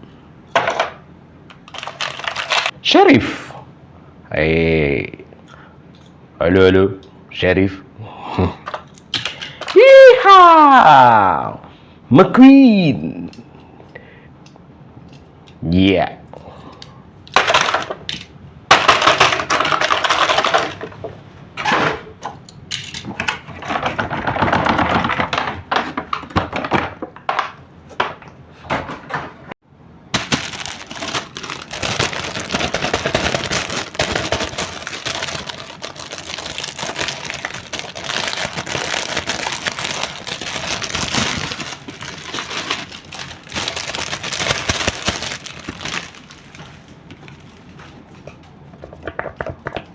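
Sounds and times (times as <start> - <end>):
plastic toy parts clattering: 0.5 - 2.8, 8.7 - 9.8, 17.3 - 21.0, 22.7 - 27.6, 30.2 - 46.6.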